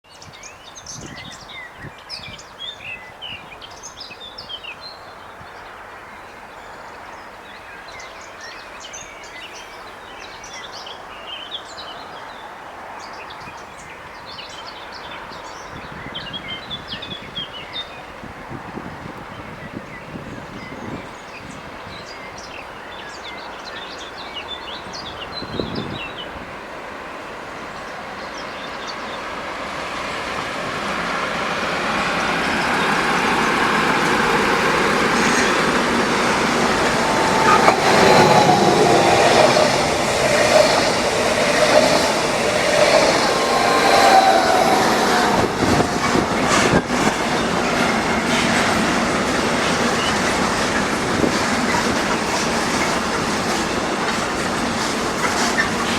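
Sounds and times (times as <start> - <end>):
freight train rumble: 23.4 - 55.9
wheels clacking over rail joints: 29.8 - 55.9
train wheels squealing: 32.1 - 48.9.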